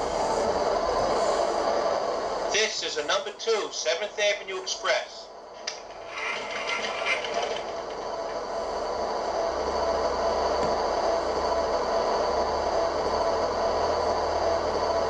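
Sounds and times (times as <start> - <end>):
low rolling rumble: 5.4 - 13.9
model train motor hum: 5.6 - 10.6.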